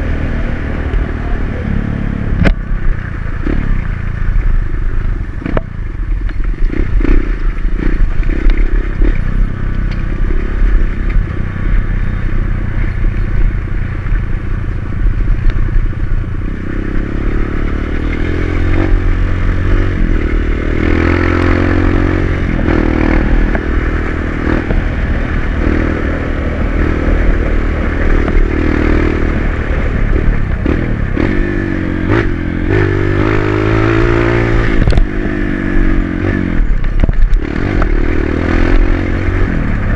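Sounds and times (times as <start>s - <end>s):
dirt bike engine revving: 6.6s - 11.7s, 16.4s - 39.9s.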